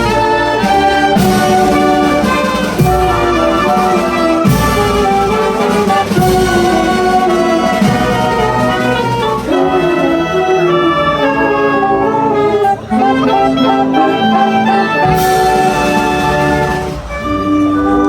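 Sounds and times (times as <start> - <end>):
wind band playing brass chords: 0.0 - 18.0.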